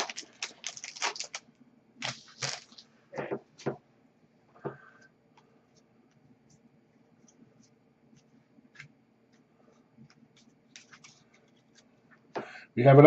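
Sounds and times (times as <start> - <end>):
trading cards clicking and rustling: 0.0 - 1.4, 2.0 - 2.8, 10.1 - 11.9.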